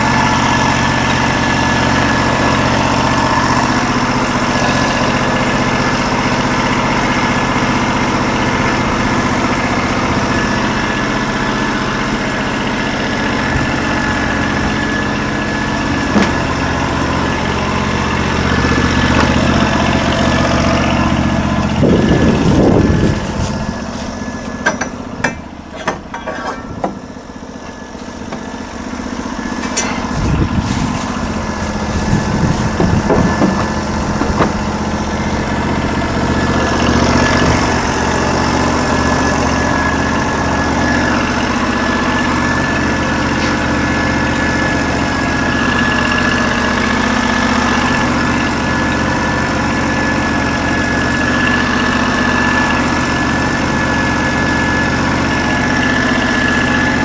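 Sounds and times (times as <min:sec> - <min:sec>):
sawmill engine running: 0:00.0 - 0:57.0
sharp clicks and knocks: 0:24.4 - 0:27.1, 0:32.6 - 0:34.9.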